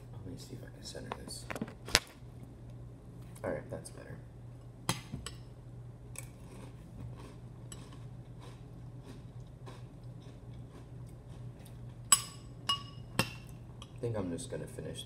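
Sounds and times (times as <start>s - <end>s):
low steady hum: 0.0s - 15.0s
crunchy chewing: 6.2s - 12.1s
spoon clinking against bowl: 12.1s - 14.0s.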